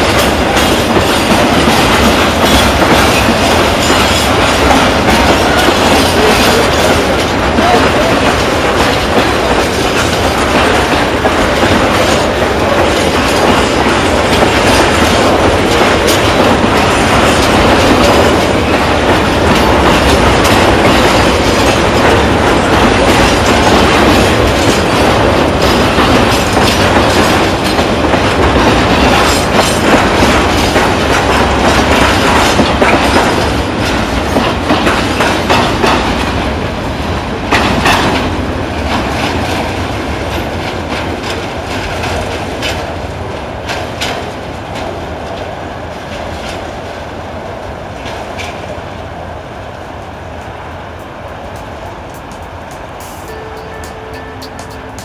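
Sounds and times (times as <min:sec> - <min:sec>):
wheels clattering over rail joints: 0:00.0 - 0:36.4
freight train rolling past: 0:00.0 - 0:55.0.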